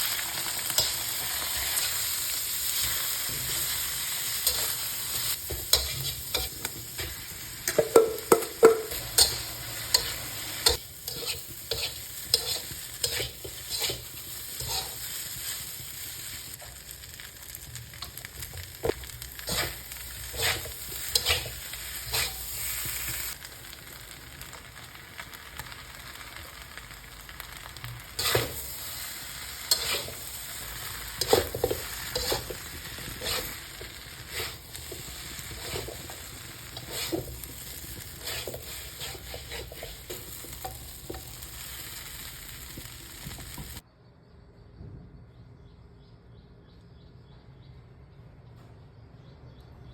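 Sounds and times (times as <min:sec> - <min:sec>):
fried rice sizzling in a pan: 0:00.0 - 0:43.8
spatula scraping a pan: 0:00.1 - 0:17.2, 0:18.0 - 0:23.4, 0:28.1 - 0:43.8.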